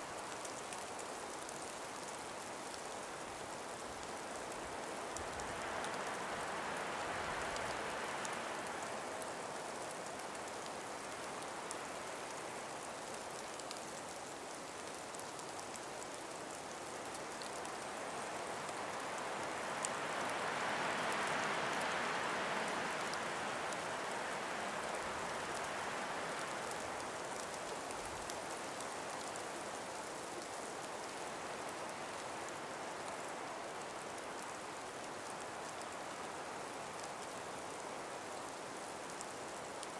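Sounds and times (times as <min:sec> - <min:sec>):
wind through trees: 0:00.0 - 0:39.9
faint ticks: 0:07.3 - 0:21.9.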